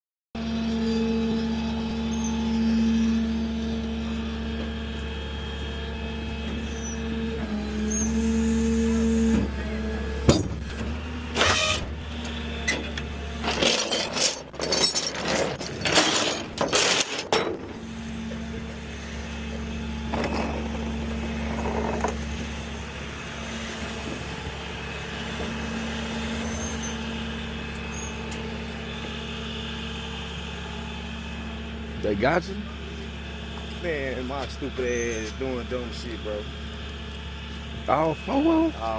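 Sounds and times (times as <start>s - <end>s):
truck engine idling: 0.6s - 13.5s, 17.5s - 38.9s.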